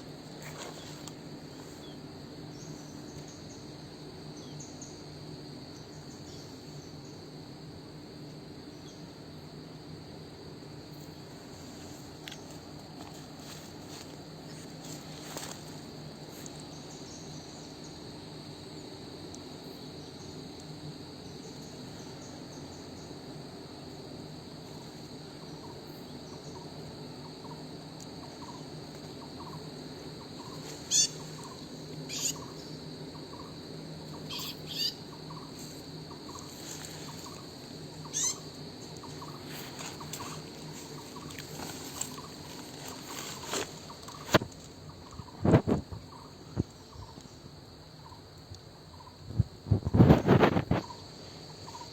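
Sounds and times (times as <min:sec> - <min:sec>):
high insect drone: 0:00.0 - 0:51.9
birds calling: 0:30.4 - 0:45.4.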